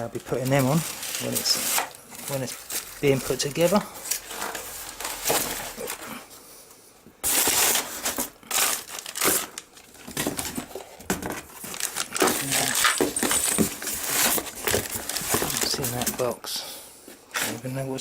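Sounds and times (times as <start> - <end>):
packaging crinkling and rustling: 0.0 - 6.2, 7.2 - 16.4.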